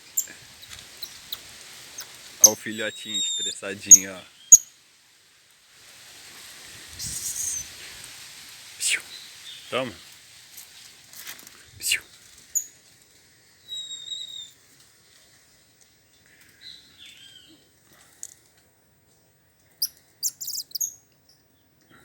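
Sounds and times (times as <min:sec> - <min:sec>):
sharp animal chirps: 0:02.0 - 0:04.7, 0:07.0 - 0:07.7, 0:19.8 - 0:21.0
animal whistle call: 0:03.0 - 0:03.6.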